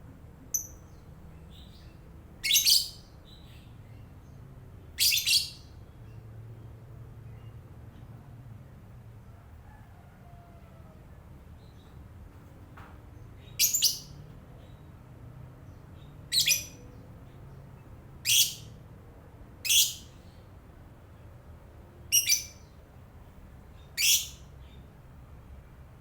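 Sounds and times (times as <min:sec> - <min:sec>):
bird high-pitched calls: 0:01.5 - 0:03.1, 0:05.0 - 0:05.7, 0:13.6 - 0:14.2, 0:16.3 - 0:16.9, 0:18.2 - 0:18.7, 0:19.6 - 0:20.3, 0:22.1 - 0:22.7, 0:23.8 - 0:24.5.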